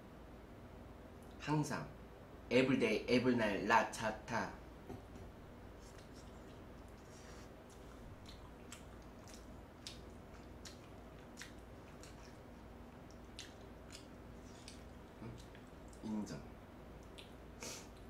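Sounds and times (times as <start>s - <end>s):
person chewing: 5.8s - 16.1s, 17.0s - 18.0s
wet mouth clicks and smacks: 7.7s - 16.0s, 17.0s - 18.0s.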